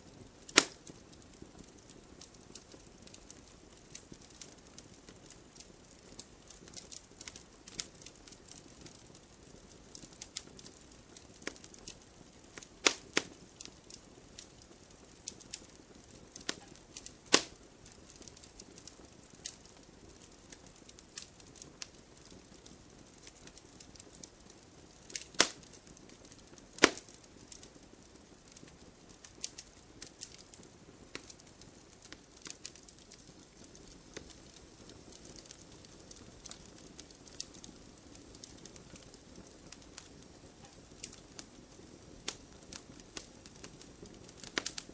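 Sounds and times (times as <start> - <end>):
wood fire crackling: 0.0 - 44.9
sharp pops and snaps: 0.5 - 1.0, 12.6 - 14.5, 16.4 - 19.6, 25.0 - 27.7, 28.5 - 39.1, 43.2 - 44.9.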